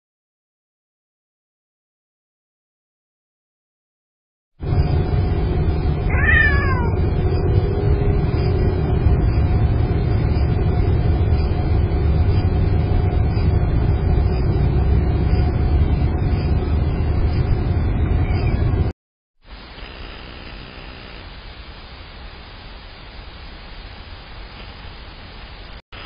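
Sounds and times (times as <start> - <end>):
faint steady hum: 4.6 - 18.9, 19.5 - 26.0.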